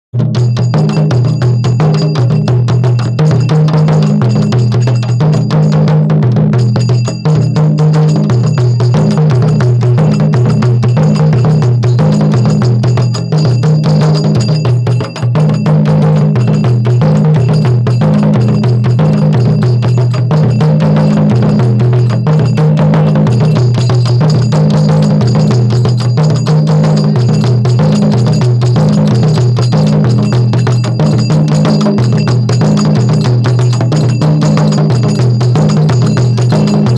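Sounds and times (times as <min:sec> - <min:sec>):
kettle drums in fast rhythm: 0:00.1 - 0:36.9.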